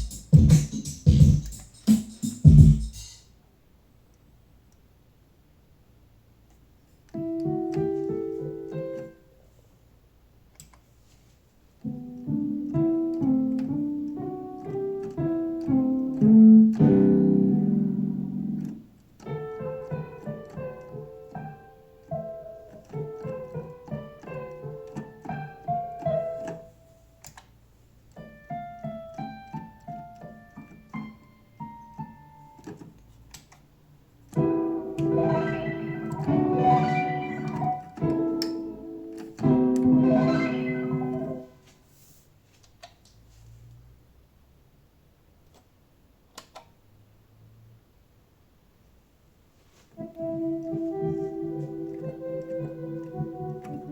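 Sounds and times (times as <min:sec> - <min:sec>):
keyboard piano chords: 0:00.0 - 0:03.0, 0:07.1 - 0:09.4, 0:11.8 - 0:27.4, 0:28.0 - 0:33.0, 0:34.2 - 0:41.6, 0:49.9 - 0:53.9.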